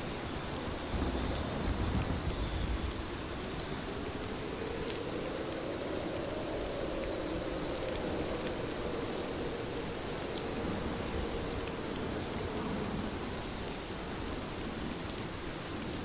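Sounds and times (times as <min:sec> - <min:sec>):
heavy rain falling: 0:00.0 - 0:16.0
low rumble: 0:00.9 - 0:13.0.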